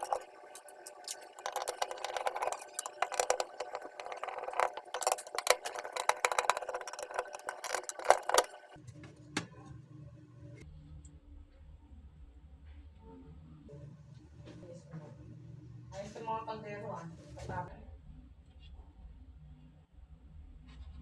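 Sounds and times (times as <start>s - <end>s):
hard parts rattling and clinking: 0.0s - 8.8s.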